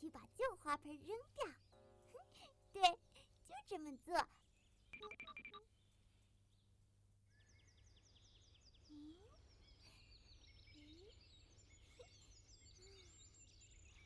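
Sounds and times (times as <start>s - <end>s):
faint bird chirps: 4.2s - 14.0s.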